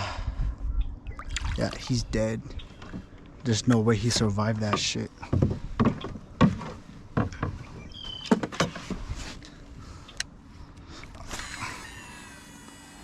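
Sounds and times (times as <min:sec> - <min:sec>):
fishing gear knocking on canoe: 0:04.1 - 0:07.7
fishing reel whirring: 0:11.2 - 0:13.0.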